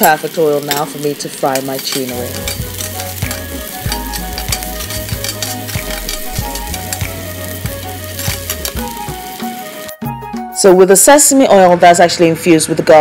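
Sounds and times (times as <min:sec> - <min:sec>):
metal tongs on pan: 0:00.0 - 0:09.3
shallots sizzling in hot oil: 0:00.0 - 0:10.0
background music with bass: 0:02.2 - 0:10.6.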